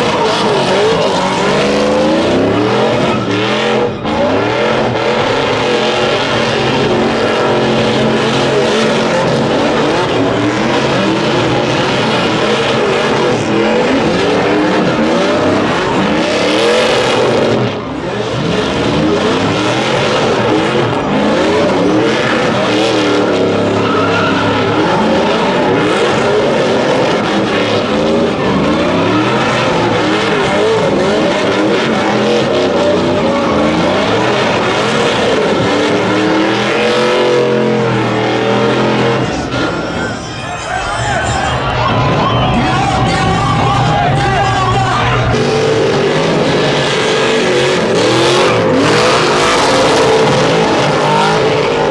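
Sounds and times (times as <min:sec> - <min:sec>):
truck engine revving: 0:00.0 - 0:51.9
tyre squeal: 0:19.5 - 0:43.9.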